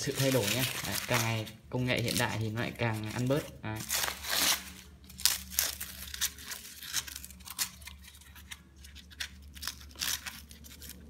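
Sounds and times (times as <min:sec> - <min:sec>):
paper wrapping crinkling and tearing: 0:00.0 - 0:11.0.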